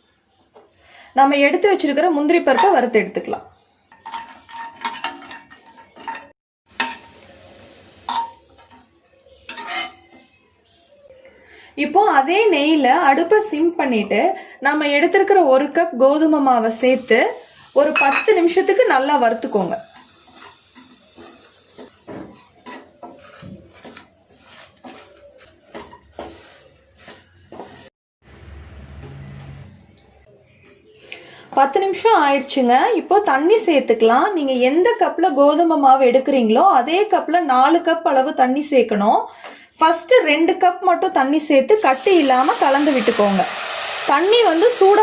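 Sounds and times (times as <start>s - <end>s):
spoon scraping metal pan: 2.4s - 3.0s, 9.4s - 10.2s, 17.8s - 27.9s
faint sizzle: 6.7s - 12.8s, 16.1s - 30.3s, 41.7s - 45.0s.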